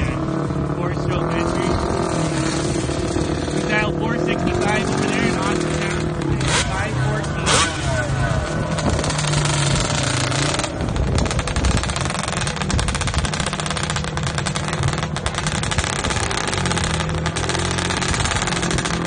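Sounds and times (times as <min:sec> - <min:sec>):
motorcycle engines running loudly: 0:00.0 - 0:19.0.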